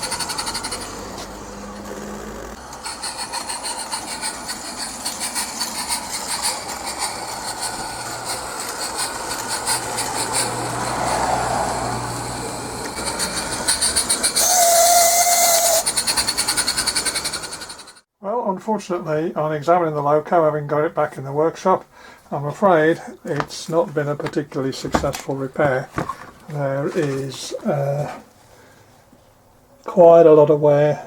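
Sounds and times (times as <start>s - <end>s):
steam locomotive exhaust beats: 0.0s - 18.0s
steam whistle: 2.6s - 17.6s.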